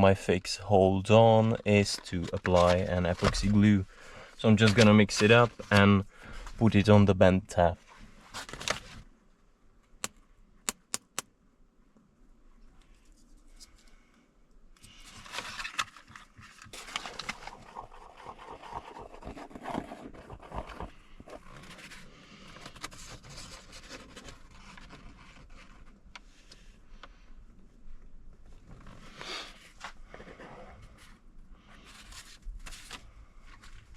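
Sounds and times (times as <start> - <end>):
sharp clicks: 10.0 - 11.3
glue scraping and scratching: 16.8 - 21.8.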